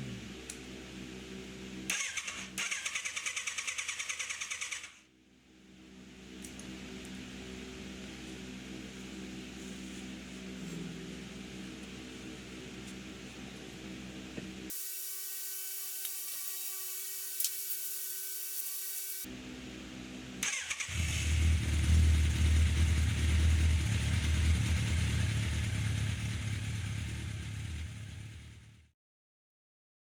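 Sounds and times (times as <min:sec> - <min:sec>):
motorcycle engine running unevenly: 0:06.4 - 0:14.7, 0:20.9 - 0:28.9
starter motor whine: 0:20.4 - 0:28.7.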